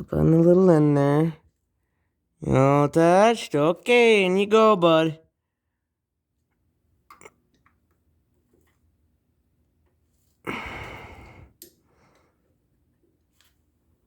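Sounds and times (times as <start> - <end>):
person exhaling heavily: 10.4 - 11.6.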